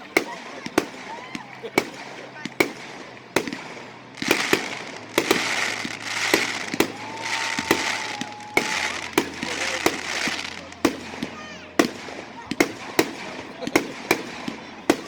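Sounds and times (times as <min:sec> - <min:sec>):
fireworks booming: 0:00.0 - 0:15.0
crackling showers: 0:02.6 - 0:11.1.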